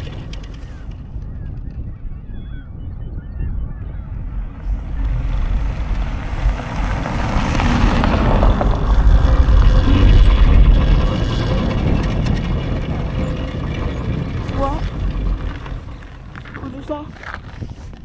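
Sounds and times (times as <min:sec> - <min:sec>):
wind buffeting the microphone: 0:00.0 - 0:18.0.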